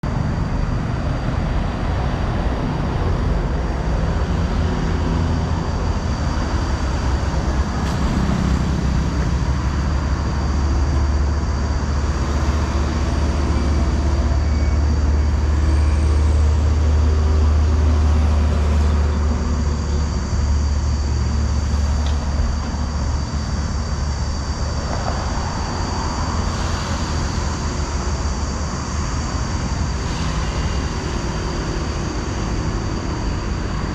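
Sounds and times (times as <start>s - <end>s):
road noise: 0.0s - 33.9s
truck diesel engine rumbling: 0.0s - 33.9s.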